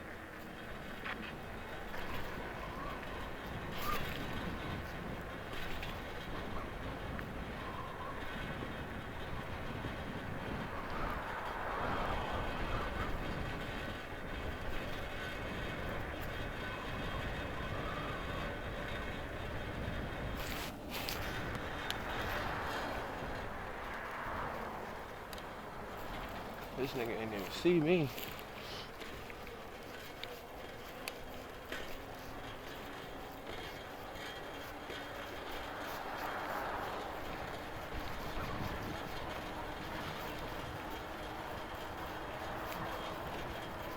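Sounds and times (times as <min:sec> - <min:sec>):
traffic rumble: 0:00.0 - 0:43.9
wind noise: 0:00.6 - 0:43.9
vehicle passing close by: 0:21.0 - 0:28.5, 0:35.1 - 0:43.9.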